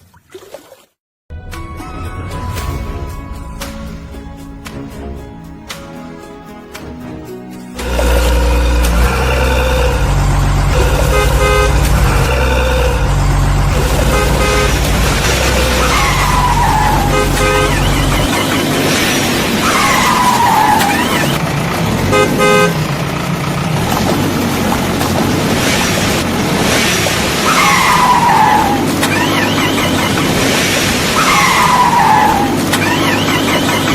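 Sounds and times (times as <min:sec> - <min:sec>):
deep engine rumble: 0:01.3 - 0:32.8
cartoon horn toots: 0:07.8 - 0:18.4, 0:22.1 - 0:22.8
falling whines: 0:07.8 - 0:21.5, 0:26.9 - 0:33.9.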